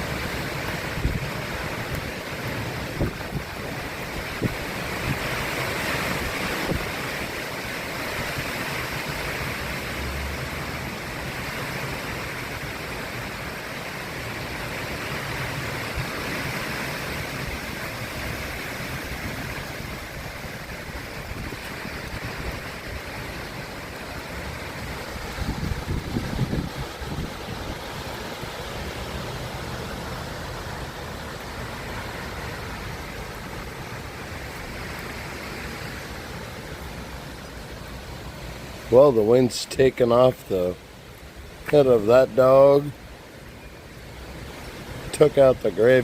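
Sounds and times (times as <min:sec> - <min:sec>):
wind buffeting microphone: 0:00.0 - 0:09.4, 0:15.0 - 0:35.2
storm wind rushing through trees: 0:00.0 - 0:46.0.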